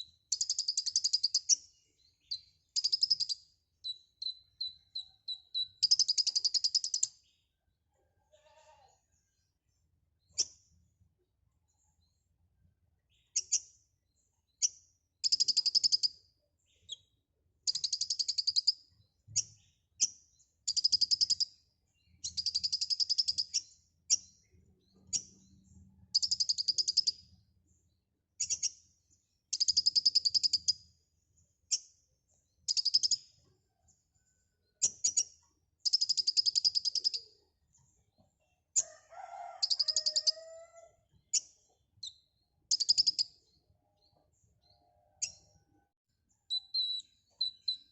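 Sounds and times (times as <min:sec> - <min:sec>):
sunbird singing buzzy trills: 0:00.0 - 0:07.2, 0:13.1 - 0:33.4, 0:34.8 - 0:38.1, 0:41.2 - 0:45.6, 0:46.3 - 0:47.9
whistled bird phrase: 0:46.5 - 0:47.9.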